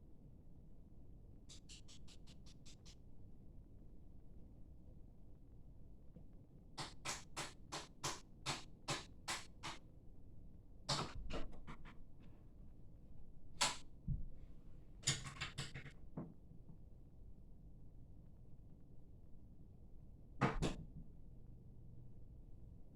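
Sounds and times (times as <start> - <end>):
sharp scratching clicks: 1.5 - 3.0.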